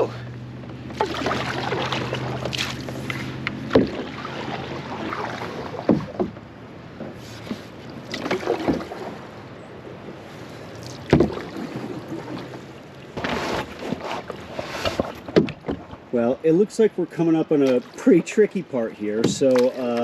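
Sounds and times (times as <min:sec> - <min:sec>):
paddle strokes splashing water: 0:00.4 - 0:20.0
sharp knocks: 0:03.6 - 0:04.1, 0:05.8 - 0:06.4.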